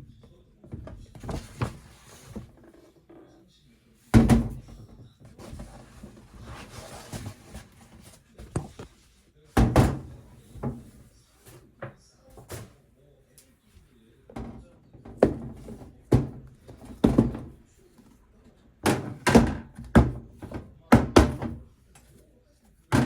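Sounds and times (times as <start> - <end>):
kitchen items knocking and thudding: 0.1 - 2.6, 4.1 - 8.9, 9.6 - 11.0, 14.3 - 17.7, 18.8 - 21.8.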